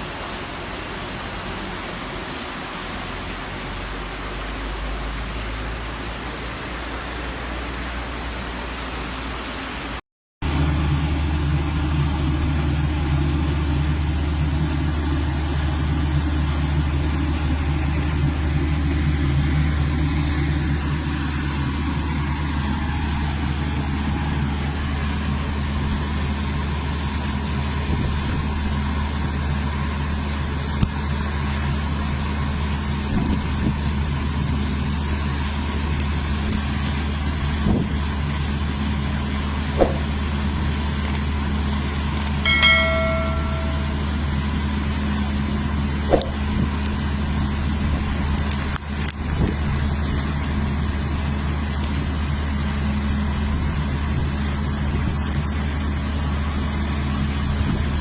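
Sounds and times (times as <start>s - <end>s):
vehicle engine humming: 0.0s - 25.7s, 34.1s - 53.7s.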